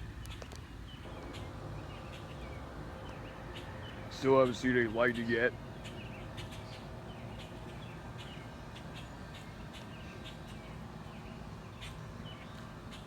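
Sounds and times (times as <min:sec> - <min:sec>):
birds chirping: 0:00.0 - 0:13.0
low outdoor rumble: 0:00.0 - 0:13.0.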